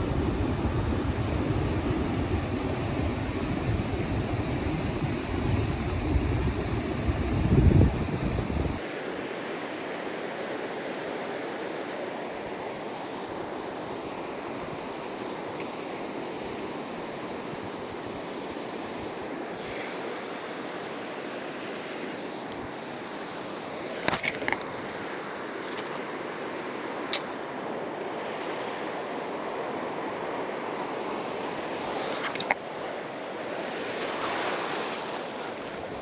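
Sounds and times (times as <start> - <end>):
ocean surf on a beach: 8.8 - 36.0.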